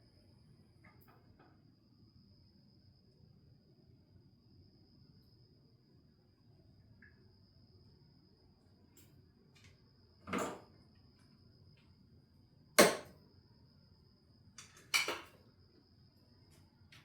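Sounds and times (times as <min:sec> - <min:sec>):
sharp knock of tools: 0:12.8 - 0:13.1.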